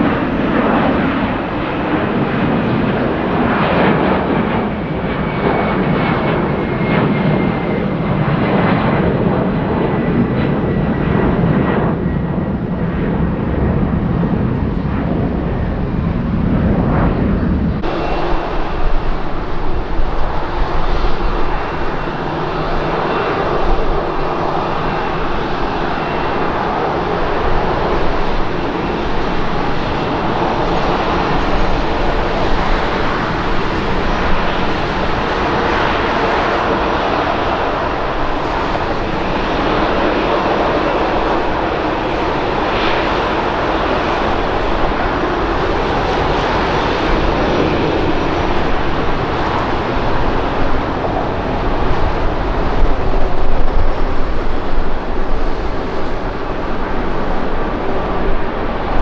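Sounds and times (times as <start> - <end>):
jet engine roar: 0.0 - 59.0
high engine whine: 12.5 - 59.0.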